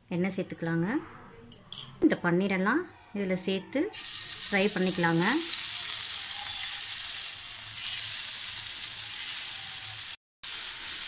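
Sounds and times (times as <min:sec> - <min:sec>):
cheese sizzling in hot oil: 0:04.0 - 0:11.0.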